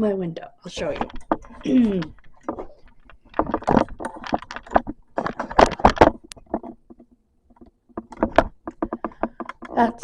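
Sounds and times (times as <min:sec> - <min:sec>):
clattering and rustling: 0:00.8 - 0:10.0.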